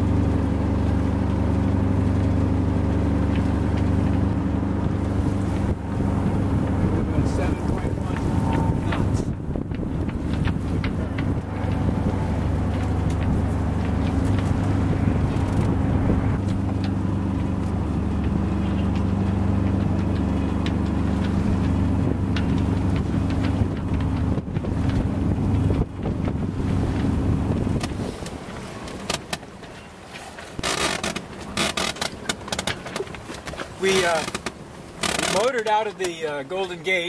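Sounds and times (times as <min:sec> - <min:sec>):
wind buffeting microphone: 0:00.0 - 0:29.0
boat engine running: 0:00.0 - 0:37.0
boat moving through rough water: 0:00.0 - 0:37.0.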